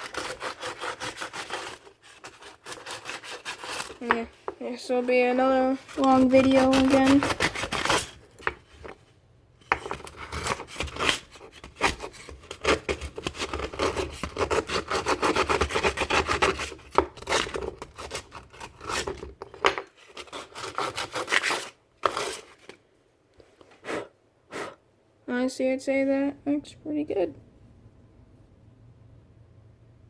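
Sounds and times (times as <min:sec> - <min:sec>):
sandpaper rubbing: 0:00.0 - 0:04.1, 0:05.8 - 0:08.2.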